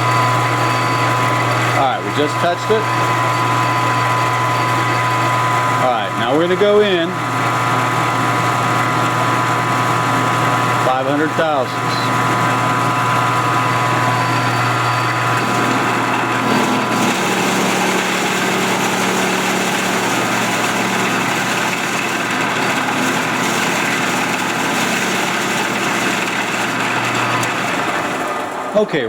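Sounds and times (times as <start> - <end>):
high steady tones: 0.0 - 6.4
milling machine cutting metal: 0.0 - 29.0
motor hum: 0.0 - 29.0.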